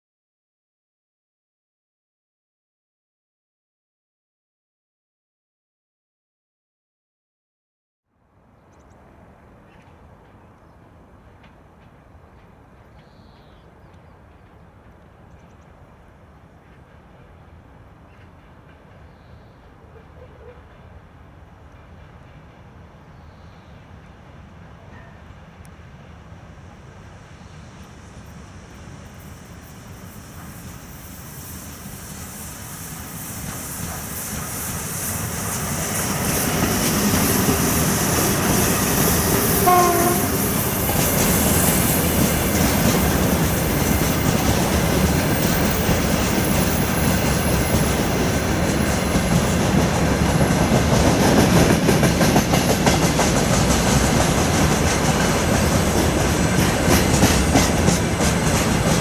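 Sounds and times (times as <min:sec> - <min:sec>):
freight train passing: 0:08.2 - 0:59.0
train horn note: 0:37.8 - 0:40.9.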